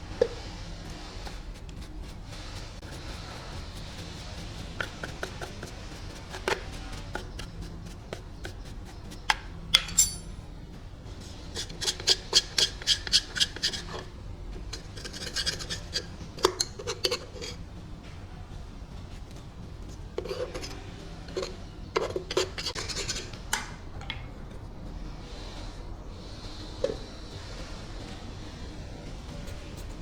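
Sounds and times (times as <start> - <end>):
rhythmic scraping on metal: 0.0 - 23.6.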